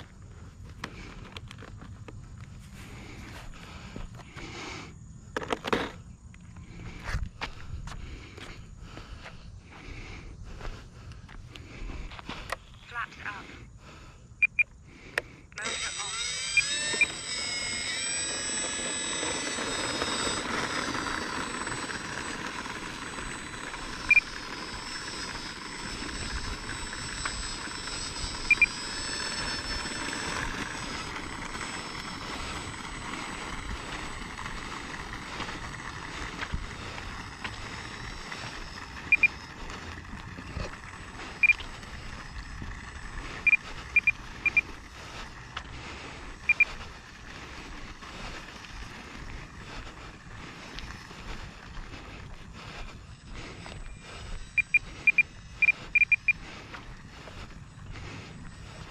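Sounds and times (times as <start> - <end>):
faint high whine: 0.0 - 58.9
model plane motor and propeller: 0.0 - 58.9
short high beeps: 14.4 - 14.7, 28.4 - 28.8, 39.1 - 39.4, 41.4 - 41.6, 43.4 - 44.7, 46.5 - 46.7, 54.5 - 56.4.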